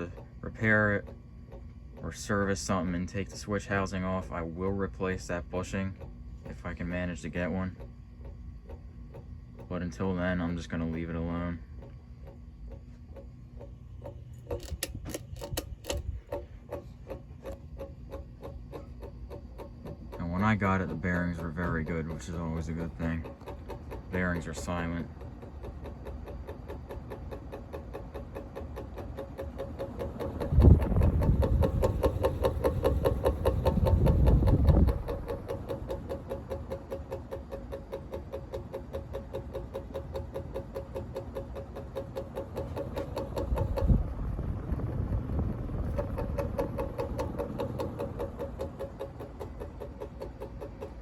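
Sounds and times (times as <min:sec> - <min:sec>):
ceiling fan motor hum: 0:00.0 - 0:51.0
fan switch housing ticking: 0:00.0 - 0:51.0
low rumble: 0:42.8 - 0:51.0.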